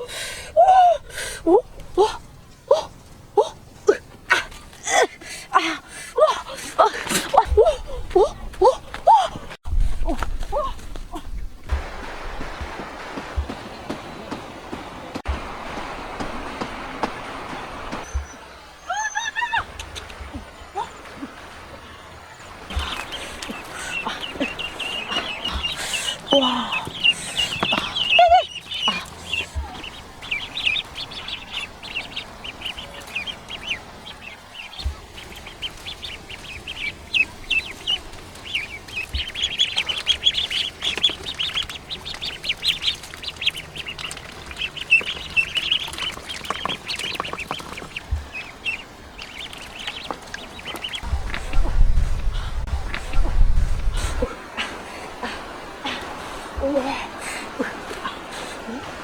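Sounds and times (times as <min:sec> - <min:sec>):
ducks and geese calling: 0:16.9 - 0:59.0.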